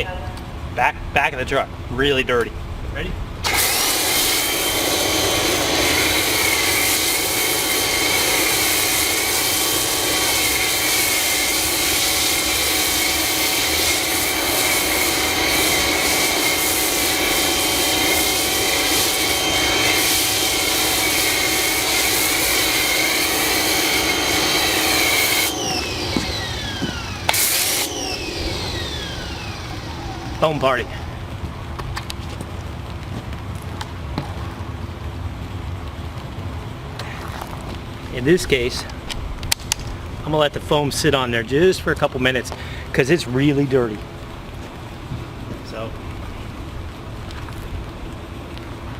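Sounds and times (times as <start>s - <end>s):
foam spray hissing: 3.4s - 31.0s
pressure washer motor whine: 3.4s - 31.2s.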